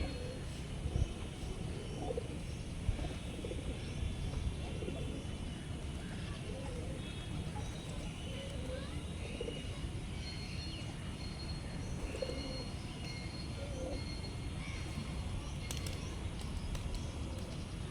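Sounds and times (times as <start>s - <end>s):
doves cooing: 0.0s - 0.5s.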